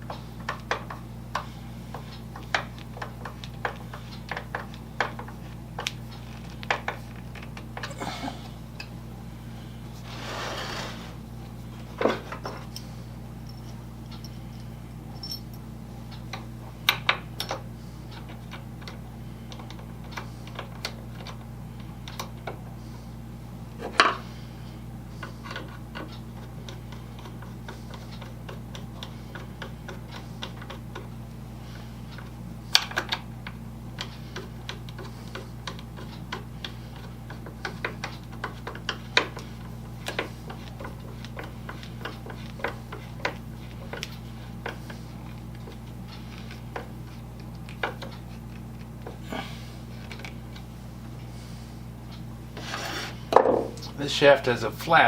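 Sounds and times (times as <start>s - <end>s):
low electrical hum: 0.0s - 55.0s
tools and parts clicking and knocking: 0.1s - 1.5s, 2.1s - 7.9s, 13.5s - 21.4s.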